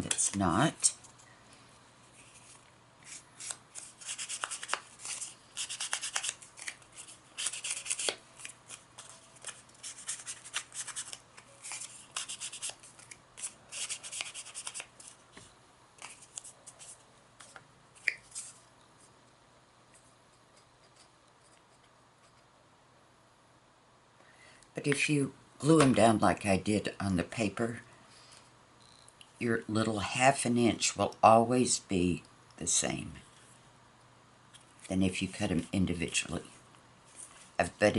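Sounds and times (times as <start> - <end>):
paper rustling and scraping: 2.2 - 15.2.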